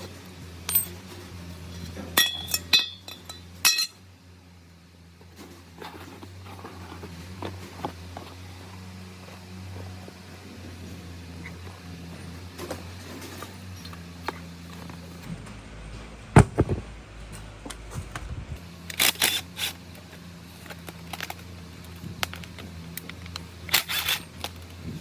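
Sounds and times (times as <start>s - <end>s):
metal parts clicking and knocking: 0.7s - 1.2s, 2.2s - 4.0s, 20.6s - 24.8s
low hum: 5.4s - 25.0s.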